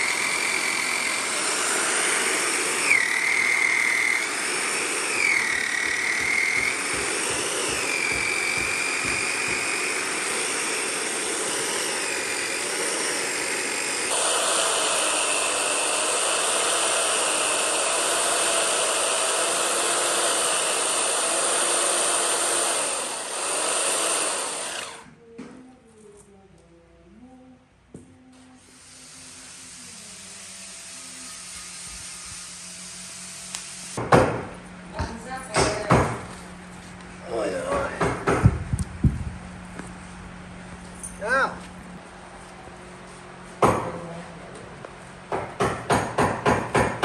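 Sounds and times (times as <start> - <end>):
woodworking power tool whining: 0.0 - 25.1, 28.6 - 34.1.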